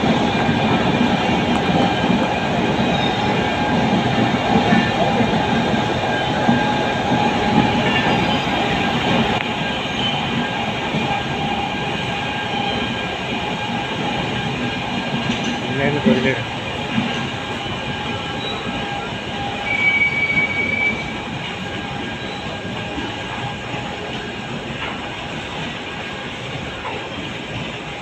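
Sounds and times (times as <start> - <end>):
freight train rumbling on rails: 0.0 - 28.0.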